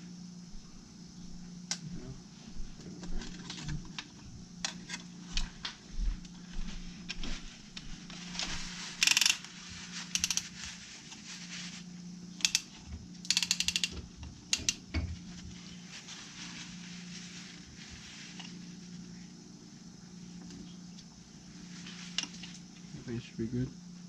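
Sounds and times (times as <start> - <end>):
steady low hum: 0.0 - 24.0
hand ratchet clicking: 9.0 - 9.5, 10.1 - 10.5, 12.4 - 14.8.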